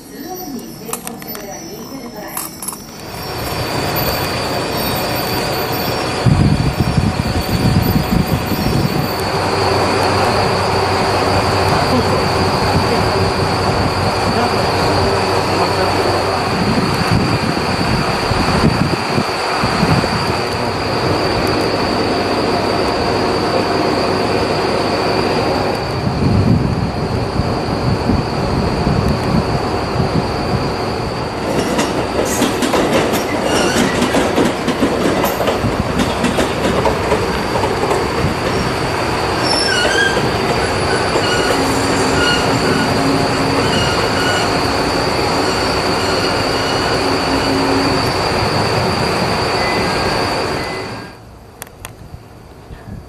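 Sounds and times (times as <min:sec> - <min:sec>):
train wheel squeal: 0:00.0 - 0:10.9, 0:30.2 - 0:51.2
train rumble: 0:00.0 - 0:53.0.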